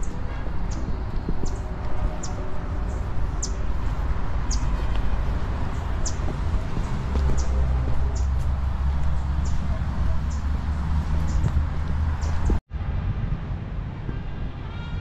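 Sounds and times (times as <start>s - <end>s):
small birds chirping: 0.0s - 3.7s, 4.4s - 4.8s, 5.7s - 8.4s, 9.0s - 12.6s.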